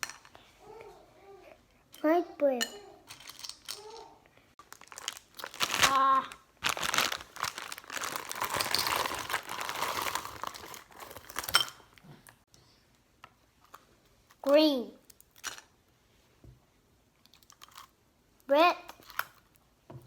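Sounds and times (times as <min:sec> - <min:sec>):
plastic wrapper crinkling: 0:04.6 - 0:11.7.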